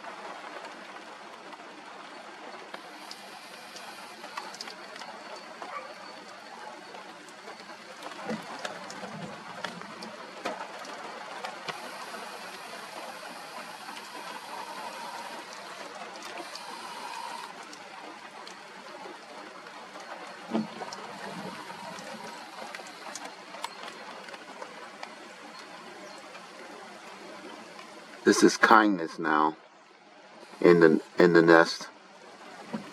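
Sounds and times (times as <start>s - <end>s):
rain and wind hiss: 0.0s - 32.9s.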